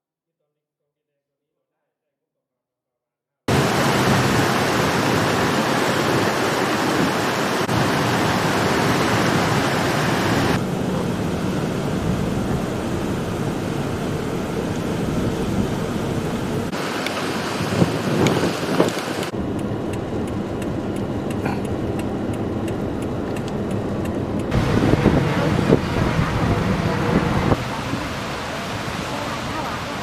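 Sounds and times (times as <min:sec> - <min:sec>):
rushing water: 0:03.5 - 0:19.4, 0:23.4 - 0:30.0.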